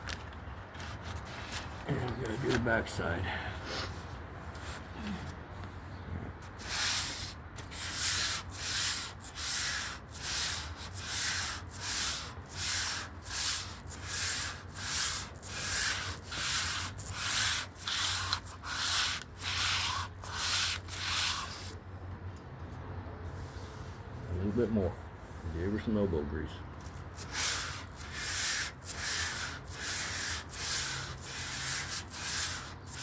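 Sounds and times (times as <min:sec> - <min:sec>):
sandpaper rubbing on wood: 0:06.5 - 0:21.8, 0:26.8 - 0:33.0.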